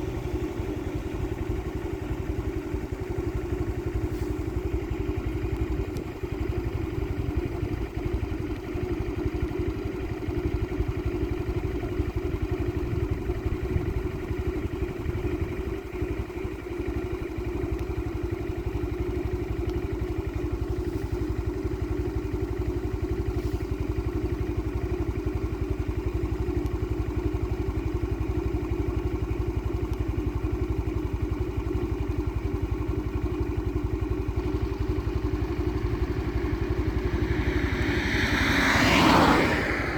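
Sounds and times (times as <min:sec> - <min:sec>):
steady motor drone: 0:00.0 - 0:02.5, 0:33.3 - 0:39.9
low rumble: 0:33.8 - 0:39.9.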